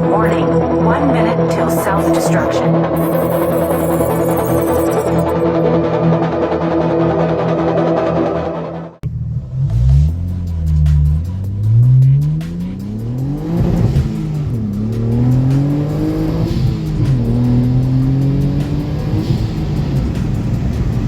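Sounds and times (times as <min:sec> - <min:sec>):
car engine accelerating hard: 0:09.0 - 0:21.0.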